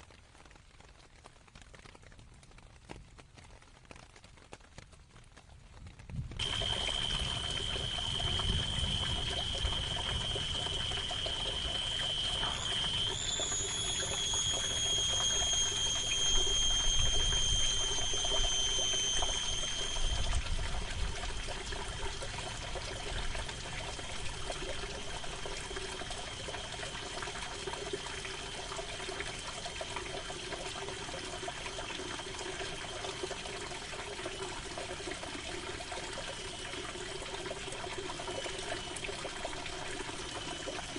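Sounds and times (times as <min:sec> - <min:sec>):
rain on a tent: 0:00.0 - 0:17.6
high whistle-like tone: 0:06.4 - 0:40.9.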